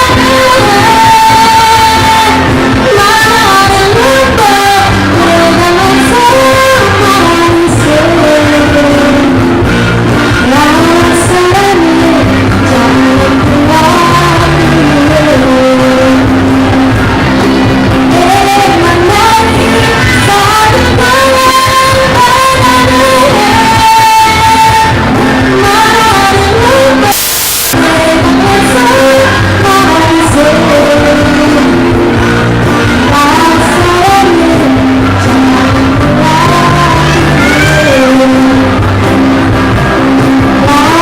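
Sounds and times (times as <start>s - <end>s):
ensemble singing a melody: 0.0s - 41.0s.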